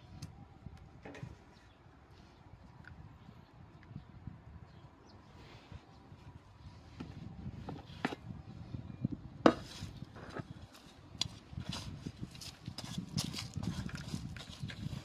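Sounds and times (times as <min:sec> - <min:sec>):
hand tool scraping food scraps: 0:09.5 - 0:15.0.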